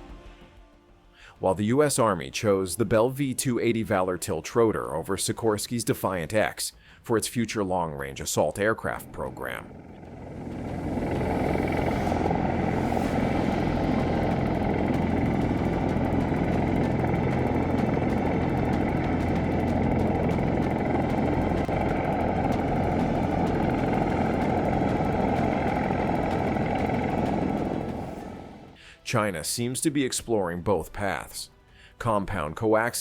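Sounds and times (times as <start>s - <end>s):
helicopter engine and rotor drone: 8.5s - 28.8s.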